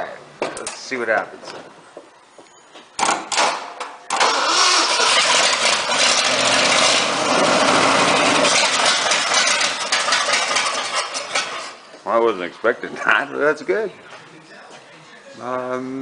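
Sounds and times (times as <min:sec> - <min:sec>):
engine starter cranking: 0:04.1 - 0:11.8
pickup engine running loudly: 0:05.1 - 0:11.6.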